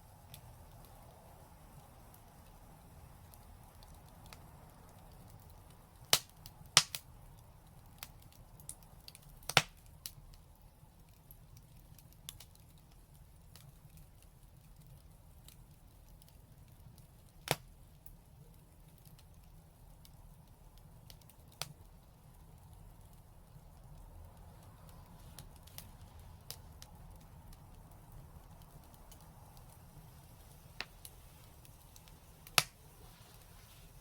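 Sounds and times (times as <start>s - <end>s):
fire crackling: 0.0s - 34.0s.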